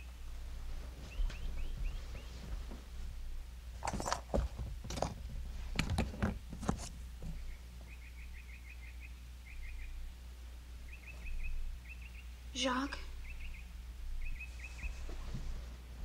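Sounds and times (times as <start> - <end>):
rustling and clattering handling: 0.6 - 7.5
small bird chirping: 1.1 - 2.4, 7.3 - 10.0, 10.8 - 15.2.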